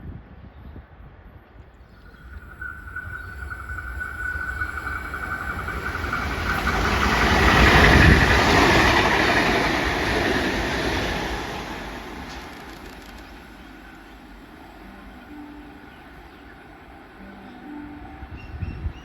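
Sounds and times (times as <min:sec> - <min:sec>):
train passing: 0:01.0 - 0:19.0
rail rumble: 0:01.1 - 0:19.0
high whine: 0:01.8 - 0:10.1.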